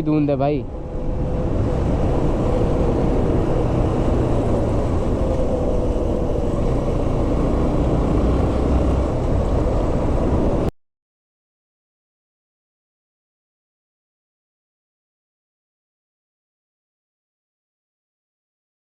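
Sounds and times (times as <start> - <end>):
wind rumble on microphone: 0.0 - 10.7
motorcycle engine running: 0.7 - 10.7.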